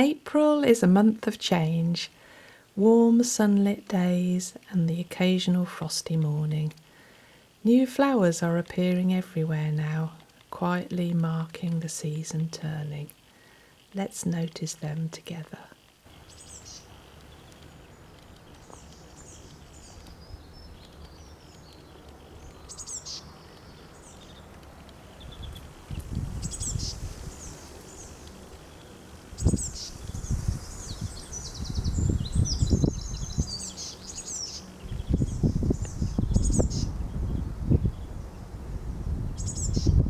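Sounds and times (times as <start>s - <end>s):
birds singing: 16.1s - 40.0s
wind buffeting microphone: 23.4s - 40.0s.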